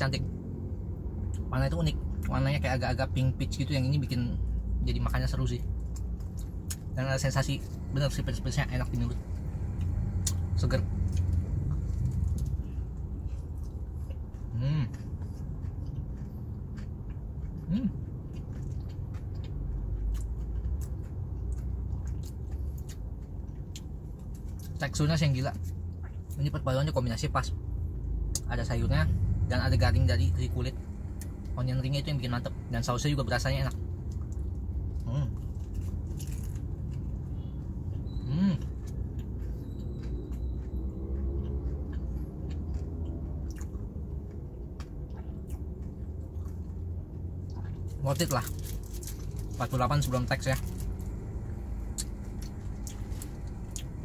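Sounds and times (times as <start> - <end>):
low car cabin hum: 0.0 - 54.0
low steady rumble: 0.0 - 54.0
person chewing: 5.5 - 24.8, 27.9 - 54.0
small crunches: 35.1 - 37.1, 48.1 - 51.2.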